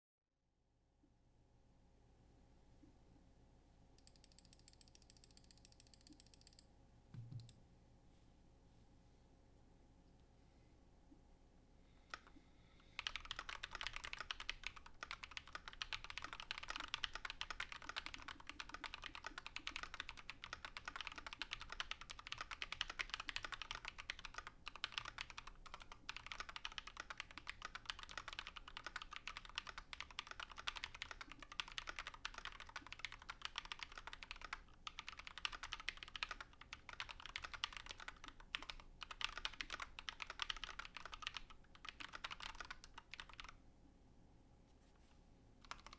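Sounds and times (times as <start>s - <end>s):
mechanical keyboard typing: 4.0s - 6.6s, 12.9s - 43.6s, 45.6s - 45.9s.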